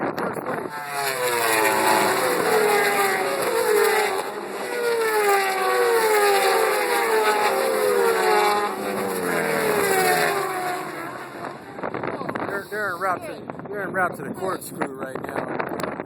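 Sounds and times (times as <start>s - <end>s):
racing motorcycles passing by: 0.6s - 13.2s.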